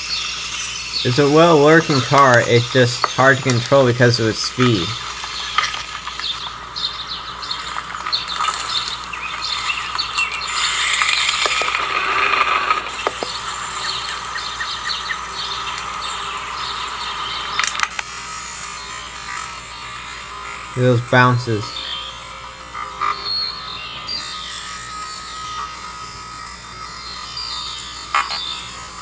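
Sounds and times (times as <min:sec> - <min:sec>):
electric toy car motor running: 0:05.0 - 0:20.7, 0:21.9 - 0:29.0.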